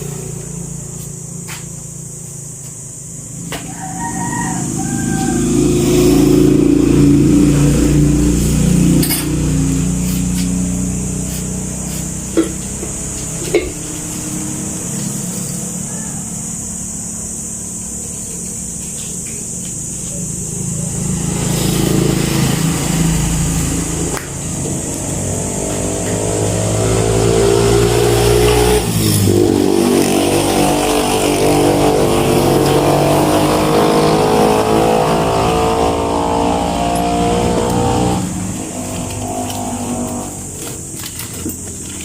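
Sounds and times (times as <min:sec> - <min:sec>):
motor running loudly: 0:05.1 - 0:42.0.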